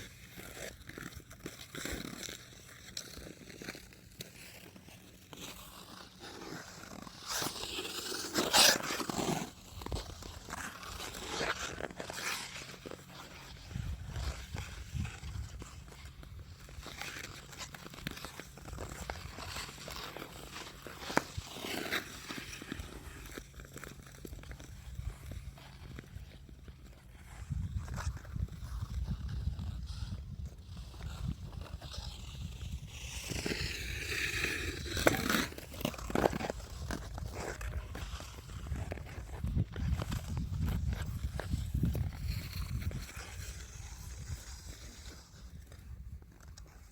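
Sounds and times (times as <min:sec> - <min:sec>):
ice skate blades scraping ice: 0:00.0 - 0:46.9
wind rumble on microphone: 0:13.6 - 0:16.4, 0:27.1 - 0:35.0, 0:36.3 - 0:46.6.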